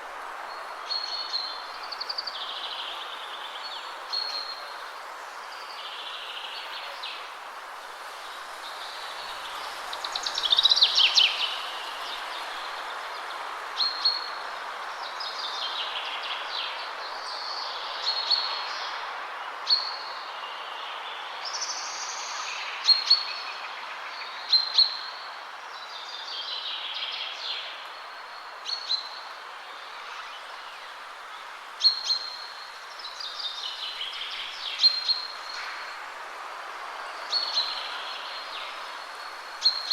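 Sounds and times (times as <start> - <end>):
wind in trees: 0.0 - 39.9
songbirds singing and calling: 8.2 - 39.9.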